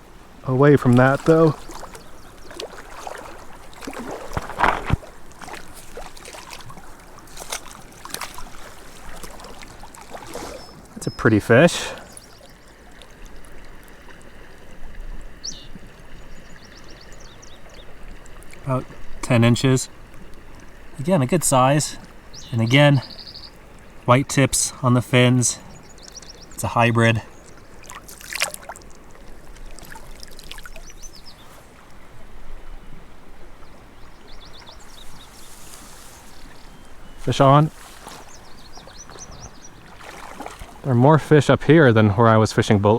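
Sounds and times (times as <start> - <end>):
creek rushing and trickling: 0.0 - 42.9
bird chirp: 10.4 - 12.7, 15.4 - 17.9, 22.3 - 23.6, 25.5 - 27.6, 30.6 - 31.6, 33.6 - 40.0.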